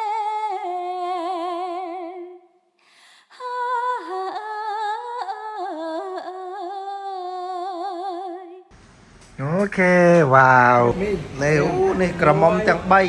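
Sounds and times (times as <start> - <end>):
woman singing unaccompanied: 0.0 - 2.4, 3.3 - 8.7.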